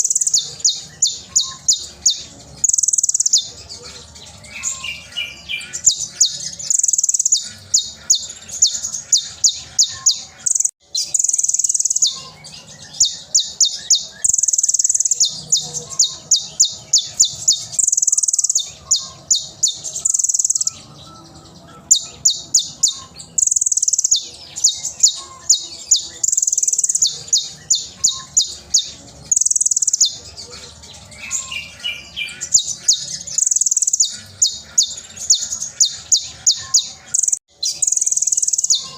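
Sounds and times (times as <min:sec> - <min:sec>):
sunbird chirps and trills: 0:00.0 - 0:38.9.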